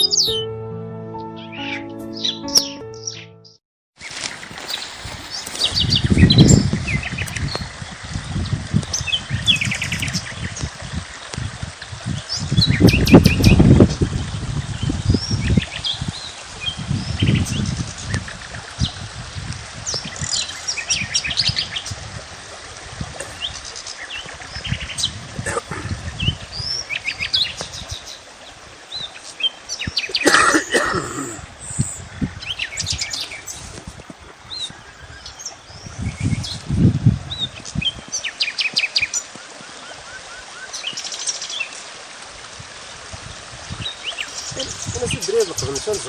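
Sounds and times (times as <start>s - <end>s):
louder fuller sound: 0.0s - 3.6s
small birds chirping: 43.8s - 46.0s.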